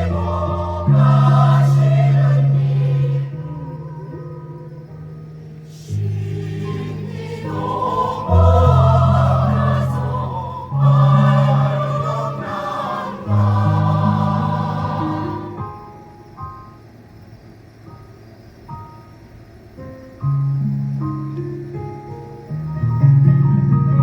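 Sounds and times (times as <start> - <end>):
choir singing slow chords: 0.0 - 16.4.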